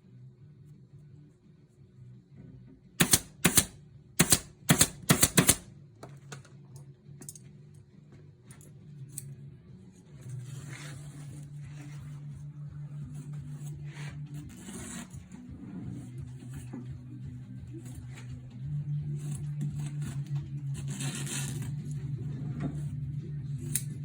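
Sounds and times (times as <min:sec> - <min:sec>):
sharp mechanical clicks: 0:03.0 - 0:05.7
steady low hum: 0:06.6 - 0:24.0.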